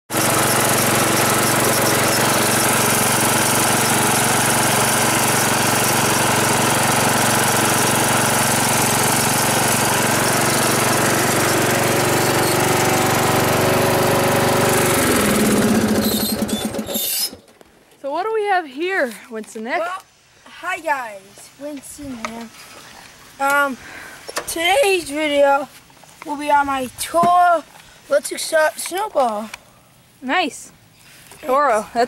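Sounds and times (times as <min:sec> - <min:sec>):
snowblower engine running: 0:00.1 - 0:17.2.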